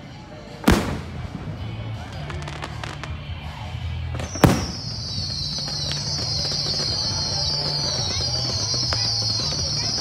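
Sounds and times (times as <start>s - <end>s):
firework fountains hissing: 0.2s - 10.0s
firework bang: 4.2s - 9.9s.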